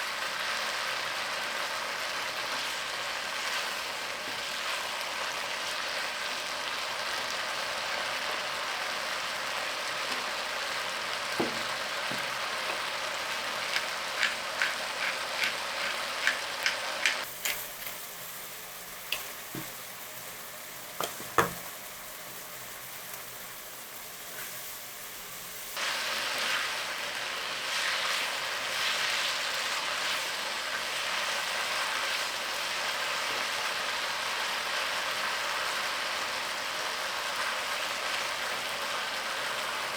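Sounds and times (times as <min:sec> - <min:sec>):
food sizzling in oil: 0:00.0 - 0:39.9
utensil tapping pan: 0:11.4 - 0:12.9, 0:13.7 - 0:18.0, 0:19.1 - 0:19.8, 0:21.0 - 0:21.7.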